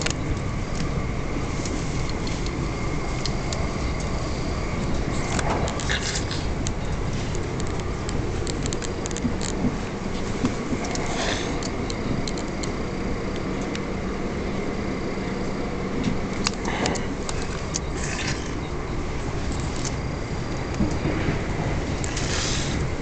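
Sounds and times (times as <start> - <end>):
train wheels on rail: 0.0 - 23.0.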